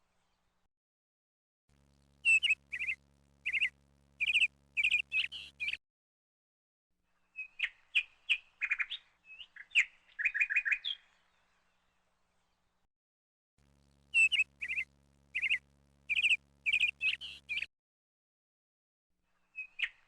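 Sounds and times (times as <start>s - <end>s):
songbird chirping: 2.2s - 5.8s, 7.2s - 12.8s, 14.1s - 17.7s, 19.4s - 20.0s.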